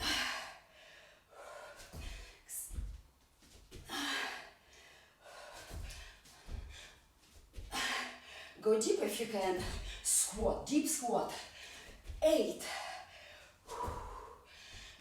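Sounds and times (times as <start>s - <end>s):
woman gasping breaths: 0.0s - 2.9s, 3.8s - 8.6s, 11.4s - 15.0s
dull low thumps: 1.9s - 3.9s.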